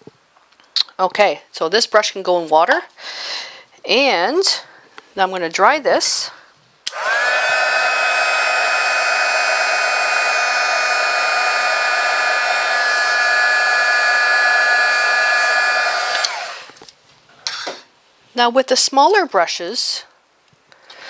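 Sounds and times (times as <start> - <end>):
electric hand dryer blowing: 6.9 - 16.8.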